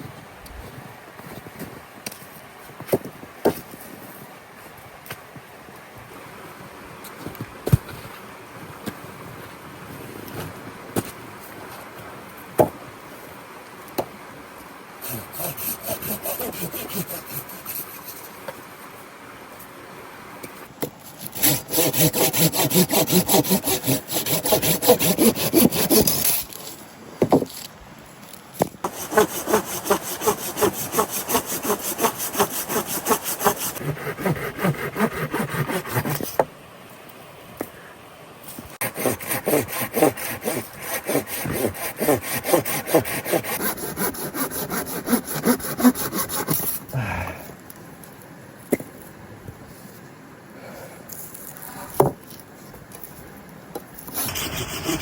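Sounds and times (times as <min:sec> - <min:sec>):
hand saw cutting wood: 0:15.0 - 0:18.4, 0:20.8 - 0:26.8, 0:28.8 - 0:36.4, 0:38.8 - 0:46.8, 0:54.1 - 0:55.0.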